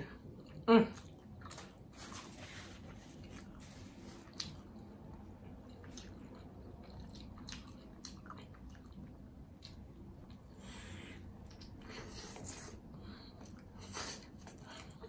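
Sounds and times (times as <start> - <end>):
wet chewing squishes: 3.2 - 10.5.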